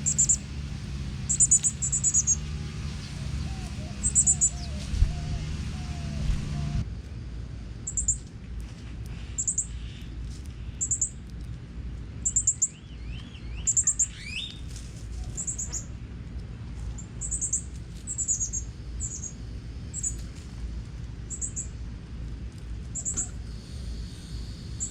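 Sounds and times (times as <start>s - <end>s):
songbird chirps: 0.0s - 6.8s, 12.2s - 16.0s, 16.8s - 20.3s, 21.2s - 21.8s, 22.9s - 23.5s
steady low rumble: 0.0s - 24.9s.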